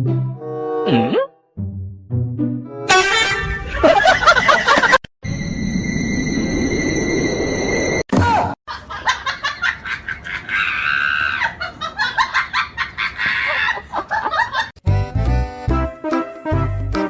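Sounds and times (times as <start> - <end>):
person laughing hard: 3.6 - 5.0, 8.7 - 14.7.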